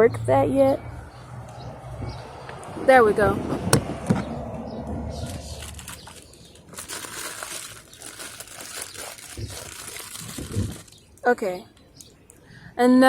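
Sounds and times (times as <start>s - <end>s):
rustling handling noise: 5.1s - 11.4s.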